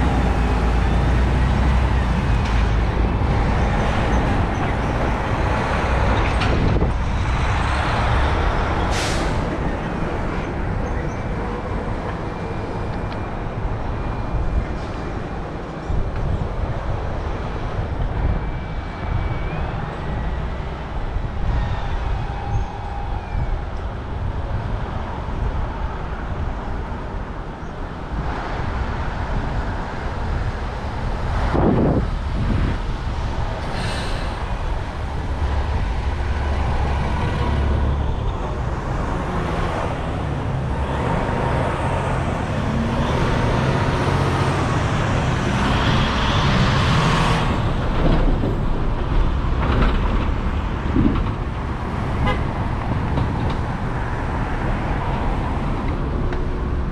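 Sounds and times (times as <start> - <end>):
passing city traffic rumble: 0.0 - 56.9
loud vehicle passing: 33.7 - 48.8.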